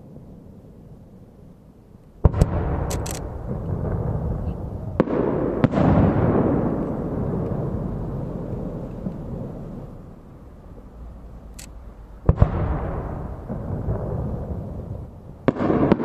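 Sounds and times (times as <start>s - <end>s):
firework shells bursting: 2.2s - 7.6s
firework crackle: 12.2s - 16.0s.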